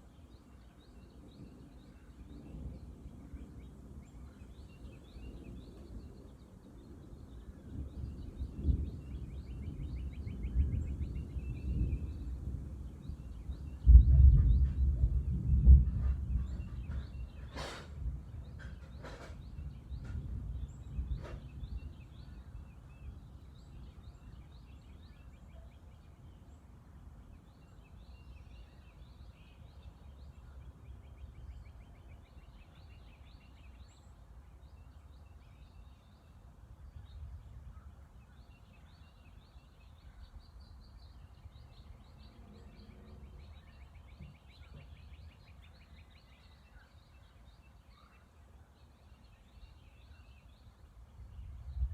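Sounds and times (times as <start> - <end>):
small birds chirping: 0.0 - 51.9
distant thunder rumbling: 1.2 - 24.6.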